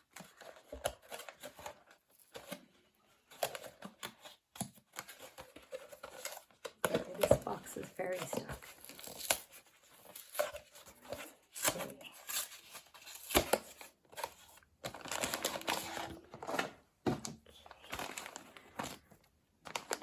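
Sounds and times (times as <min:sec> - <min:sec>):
packaging rustling: 0:05.0 - 0:20.0.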